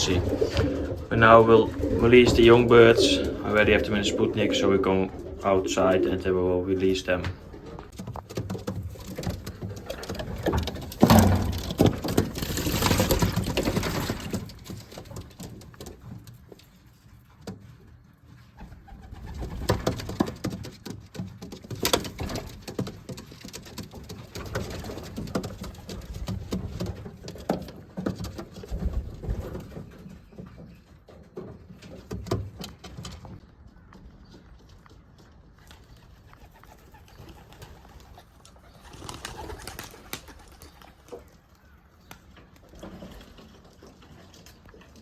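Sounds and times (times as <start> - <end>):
pigeons cooing: 0.0 - 15.8, 35.6 - 45.0
scattered knocks and clicks: 7.8 - 16.4, 19.4 - 33.4.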